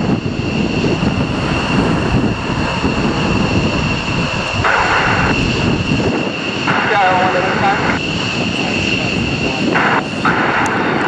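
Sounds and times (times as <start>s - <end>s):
high engine whine: 0.0s - 11.0s
jet engines running: 0.0s - 11.0s
radio static burst: 4.6s - 5.4s, 6.6s - 8.0s, 9.4s - 11.0s.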